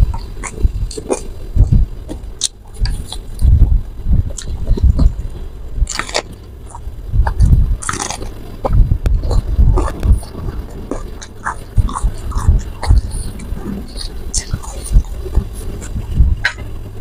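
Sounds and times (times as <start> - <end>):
wet chewing thumps: 0.0 - 16.8.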